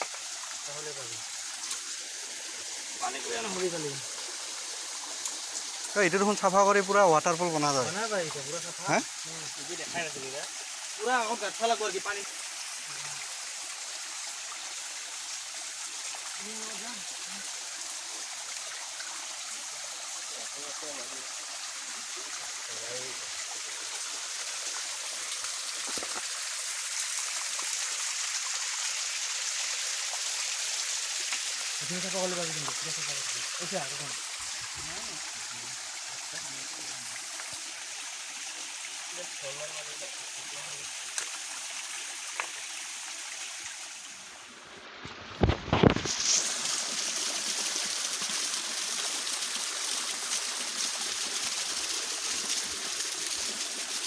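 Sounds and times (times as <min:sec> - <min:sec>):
waterfall and stream rushing: 0:00.0 - 0:54.0.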